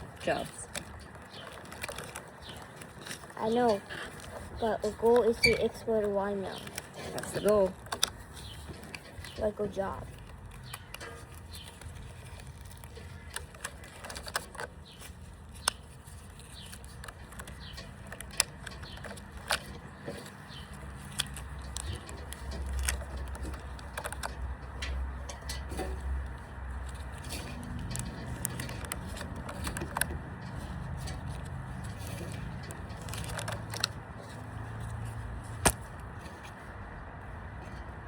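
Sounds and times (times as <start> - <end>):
rubber bands snapping: 35.6 - 36.0.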